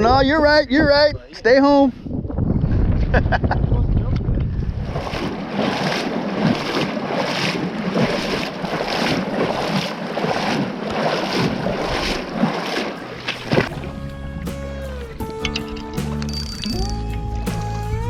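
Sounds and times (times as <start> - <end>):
wind on microphone: 0.0 - 9.8
water swishing and sloshing: 4.5 - 17.8
music: 13.7 - 18.0.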